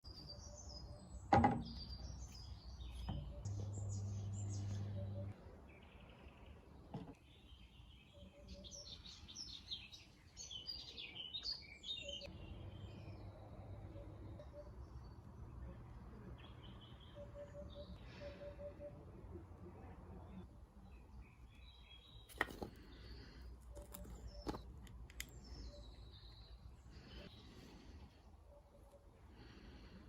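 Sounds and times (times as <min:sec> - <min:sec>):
small birds chirping: 0:00.0 - 0:19.0, 0:19.8 - 0:30.0
steady low hum: 0:03.2 - 0:05.4.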